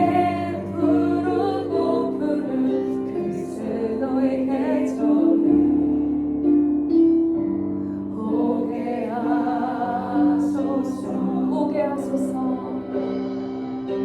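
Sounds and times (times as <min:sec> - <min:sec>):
voices singing held notes: 0:00.0 - 0:06.2
keyboard accompaniment: 0:00.0 - 0:14.0.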